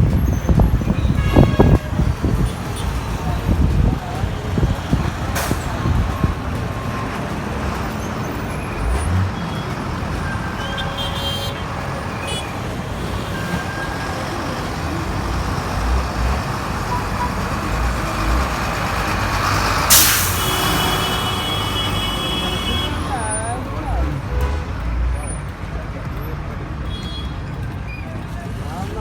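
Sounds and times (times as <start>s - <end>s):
bus engine and road noise: 0.0s - 29.0s
sudden short hiss: 19.9s - 22.8s.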